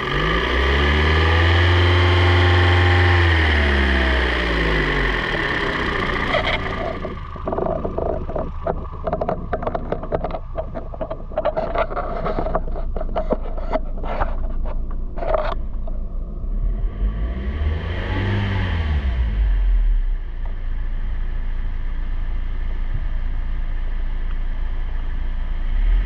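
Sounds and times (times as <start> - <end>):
car engine idling: 0.0 - 17.8, 19.2 - 26.0
scraping and knocking noises: 6.1 - 16.0.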